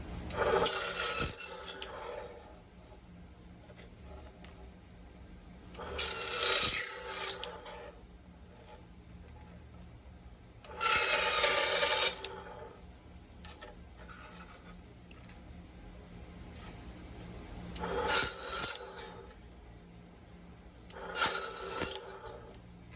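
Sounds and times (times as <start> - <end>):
dry rasping cutting strokes: 5.8 - 8.0.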